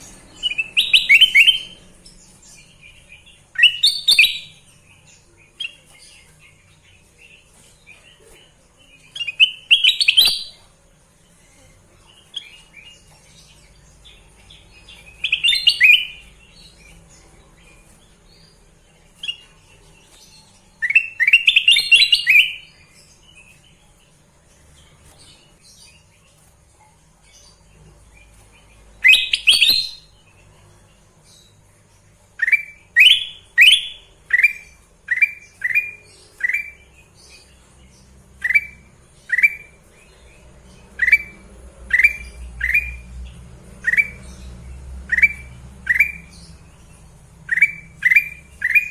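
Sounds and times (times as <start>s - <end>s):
bulbul chattering song: 0.0s - 24.8s, 27.5s - 48.9s.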